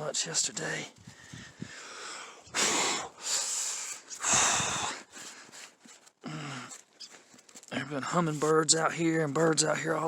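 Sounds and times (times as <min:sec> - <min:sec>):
person breathing hard: 0:01.0 - 0:06.8.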